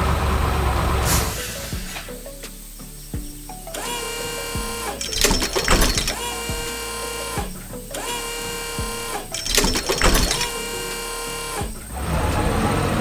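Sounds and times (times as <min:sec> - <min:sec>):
machine motor whine: 0:00.0 - 0:13.0
rapid clattering: 0:03.1 - 0:10.8.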